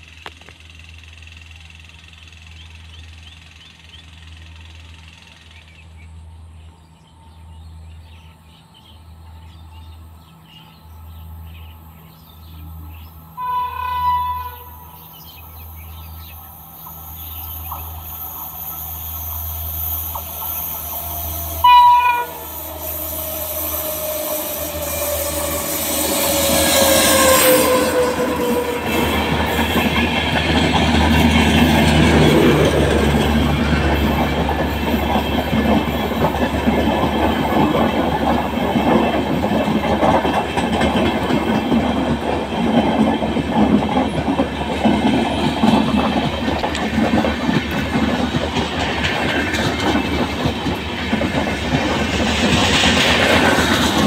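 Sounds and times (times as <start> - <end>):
train running noise: 0.0 - 54.0
train horn blasts: 13.4 - 15.0, 21.5 - 23.1, 23.7 - 29.3.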